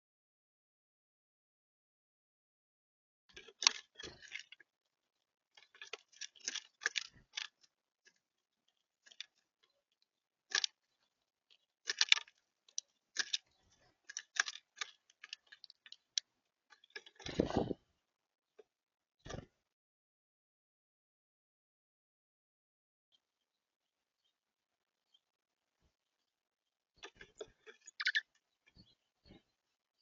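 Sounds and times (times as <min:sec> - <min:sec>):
seed pecked and cracked: 0:03.3 - 0:17.8, 0:27.0 - 0:28.8.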